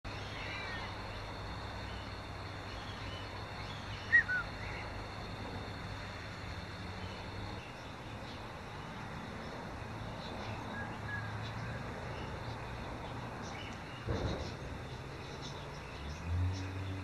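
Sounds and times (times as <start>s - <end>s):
faint bird chirps: 0.1s - 5.1s
bird call notes falling in pitch: 4.0s - 4.7s.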